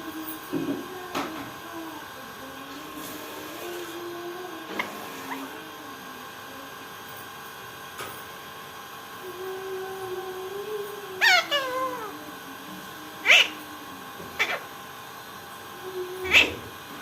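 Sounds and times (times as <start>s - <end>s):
pet meowing: 11.2s - 12.3s, 13.2s - 13.6s, 14.4s - 14.7s, 16.2s - 16.6s.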